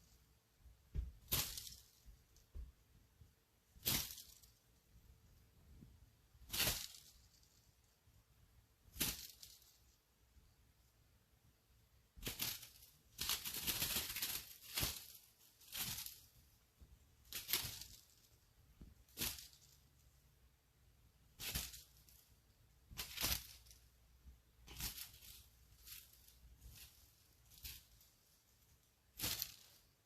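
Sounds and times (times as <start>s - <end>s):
dry rustling and scratching: 6.4s - 8.0s, 12.2s - 16.6s, 17.2s - 18.4s, 19.0s - 20.1s, 21.4s - 24.0s, 24.6s - 30.0s.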